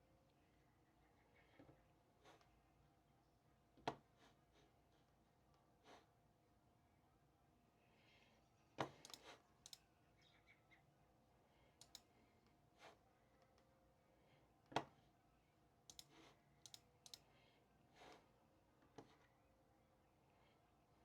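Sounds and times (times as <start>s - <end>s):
light clicks and taps at desk: 8.8s - 9.8s, 11.8s - 12.6s, 15.9s - 17.3s.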